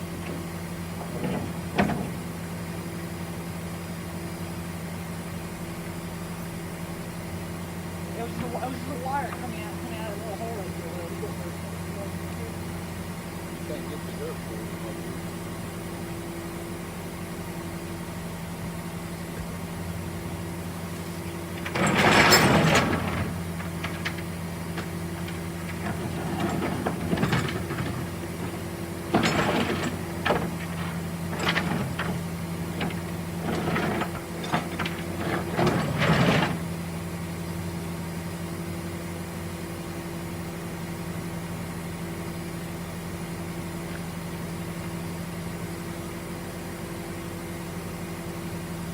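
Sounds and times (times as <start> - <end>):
vehicle engine idling: 0.0 - 21.8
loud clattering: 21.5 - 36.7.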